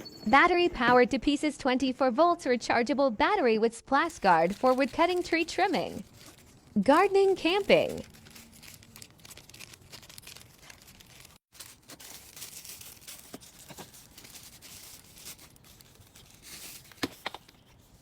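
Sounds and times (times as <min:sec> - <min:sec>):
faint crackling rustling noise: 0:04.1 - 0:18.0.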